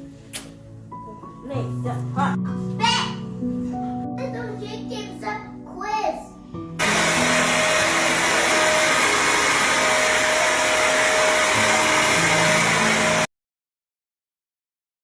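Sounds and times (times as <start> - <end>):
loud rushing noise: 6.8 - 13.3.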